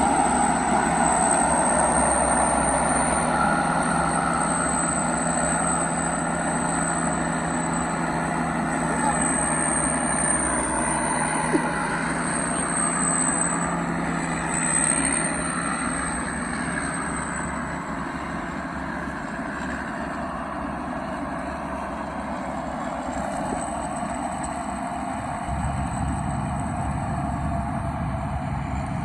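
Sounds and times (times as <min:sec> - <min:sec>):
high turbo whistle: 0:00.0 - 0:18.4
diesel truck engine running: 0:00.0 - 0:29.0.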